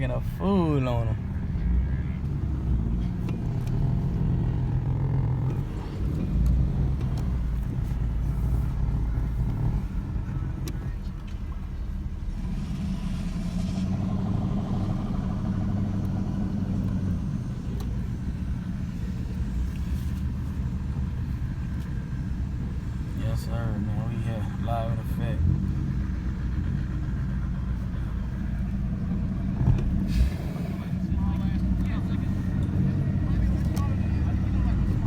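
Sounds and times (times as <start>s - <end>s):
car engines rumbling: 0.0s - 35.0s.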